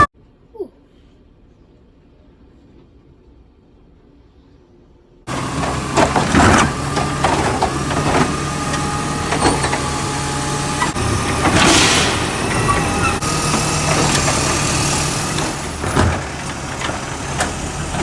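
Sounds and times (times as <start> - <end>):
garbage truck engine running: 5.3 - 18.0
trash cans clanking: 5.3 - 18.0
rushing hiss: 10.6 - 15.8.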